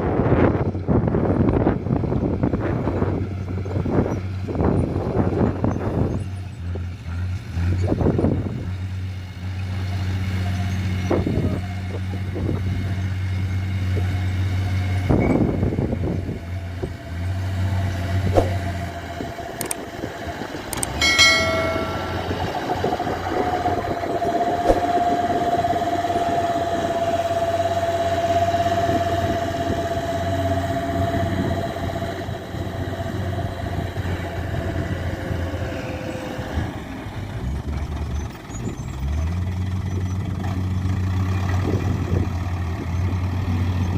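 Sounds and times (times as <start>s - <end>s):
truck engine running: 0.1s - 43.9s
steady whine: 18.0s - 35.4s.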